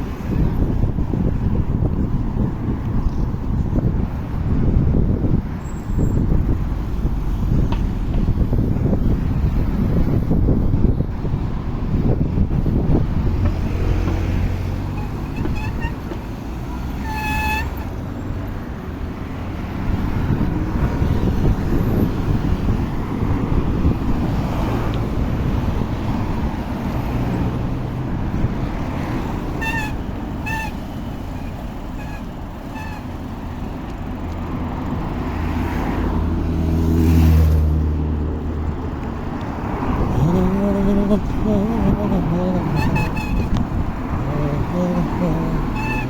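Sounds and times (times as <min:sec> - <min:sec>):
road traffic noise: 0:00.0 - 0:46.0
motor vehicle passing: 0:19.2 - 0:46.0.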